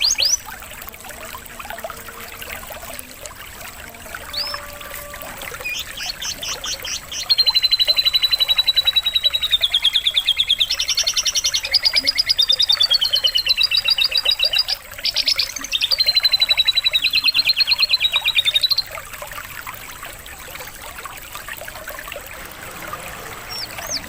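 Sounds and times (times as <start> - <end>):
canary singing trills: 0.0 - 0.5, 4.2 - 19.0, 23.3 - 24.0.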